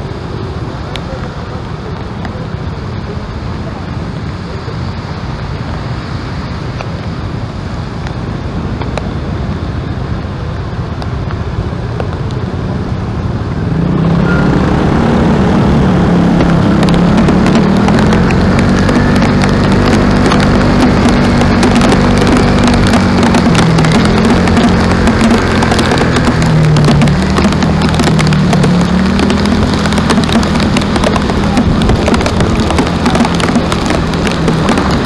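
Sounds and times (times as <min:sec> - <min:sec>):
motor engine rumbling: 0:00.0 - 0:35.0
crackling clicks: 0:14.2 - 0:35.0.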